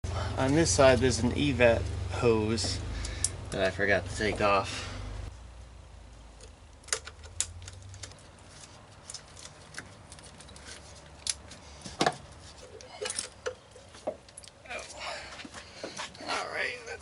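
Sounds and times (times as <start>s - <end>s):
hand tools clicking and knocking: 6.4s - 14.5s.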